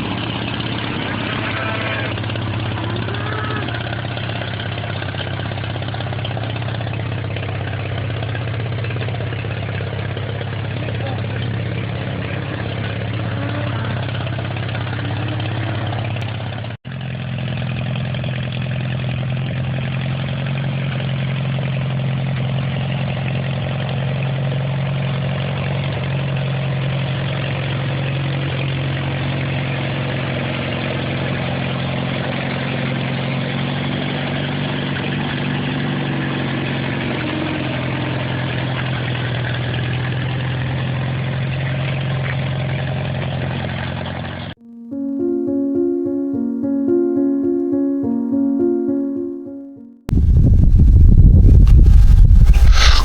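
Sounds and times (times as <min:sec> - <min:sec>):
tractor engine running: 0:02.1 - 0:19.4.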